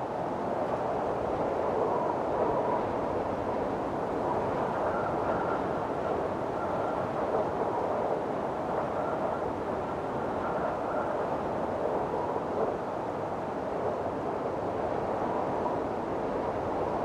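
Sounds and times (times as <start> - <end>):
faint wind whistle: 0.8 - 17.0.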